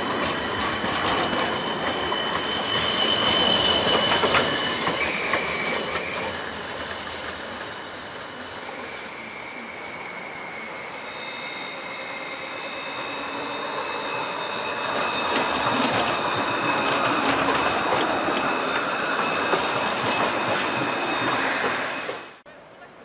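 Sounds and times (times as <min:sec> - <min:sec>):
tram whine: 0:00.0 - 0:23.0.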